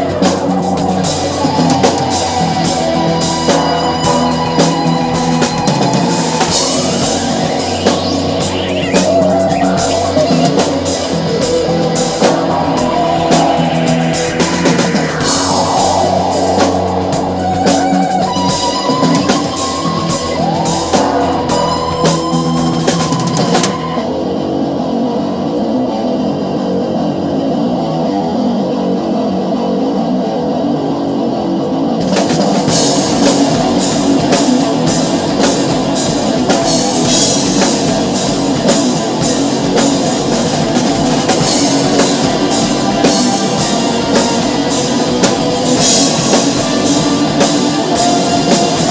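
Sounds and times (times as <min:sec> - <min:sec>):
drum kit and cymbals: 0:00.0 - 0:24.2, 0:32.0 - 0:48.9
rock backing track: 0:00.0 - 0:27.0, 0:31.8 - 0:48.9
electric guitar note bends: 0:00.0 - 0:29.0.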